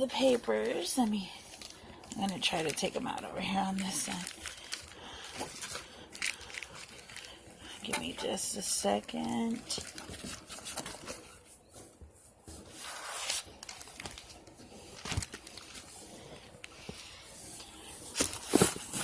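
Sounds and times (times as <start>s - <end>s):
paper rustling and sliding: 9.7s - 19.0s.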